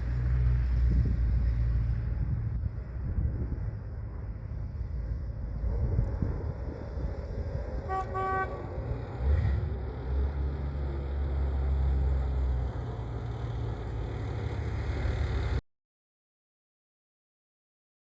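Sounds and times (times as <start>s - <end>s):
horn honk: 7.8s - 9.4s.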